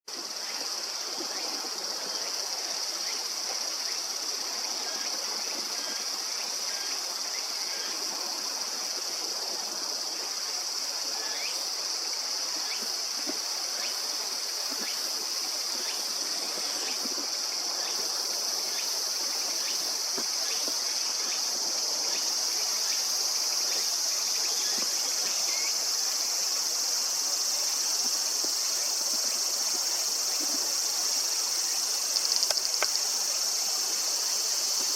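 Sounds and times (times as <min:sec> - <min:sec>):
insect chorus: 0:00.1 - 0:34.9
mountain stream rushing: 0:00.1 - 0:34.9.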